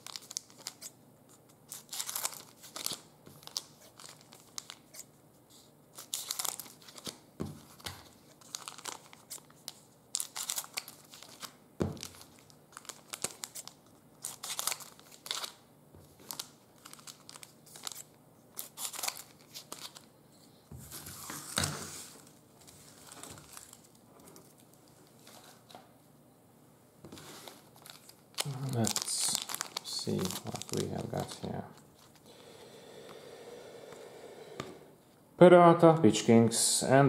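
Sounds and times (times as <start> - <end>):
wrapper crinkling and tearing: 0.0 - 1.0, 1.7 - 5.1, 5.9 - 15.6, 16.2 - 20.1, 22.6 - 25.3, 27.5 - 32.2.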